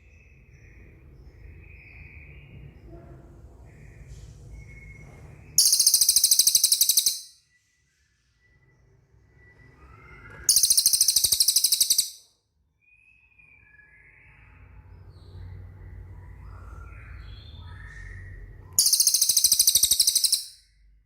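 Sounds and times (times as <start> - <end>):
high-pitched bird trills: 5.6 - 7.4, 9.8 - 12.3, 17.0 - 20.7.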